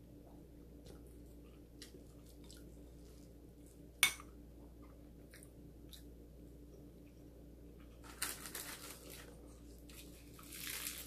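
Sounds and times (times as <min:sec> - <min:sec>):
person chewing soft food: 0:00.3 - 0:03.9.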